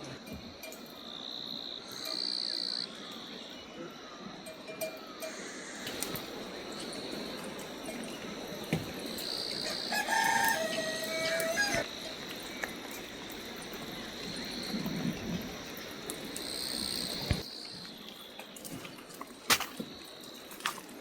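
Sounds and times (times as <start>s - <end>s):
rooster crowing: 9.6s - 11.9s.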